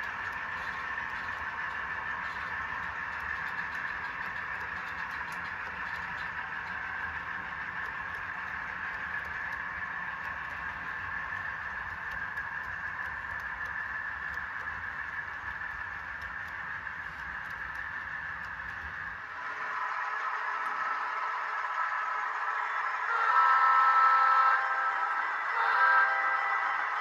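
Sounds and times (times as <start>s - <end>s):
faint ticking: 0.0s - 19.2s
locomotive engine sound through speakers: 0.0s - 27.0s.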